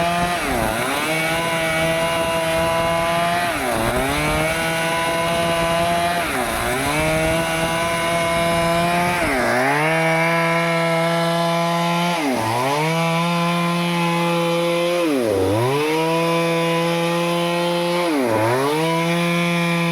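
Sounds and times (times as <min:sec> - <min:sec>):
chainsaw cutting wood: 0:00.0 - 0:19.9.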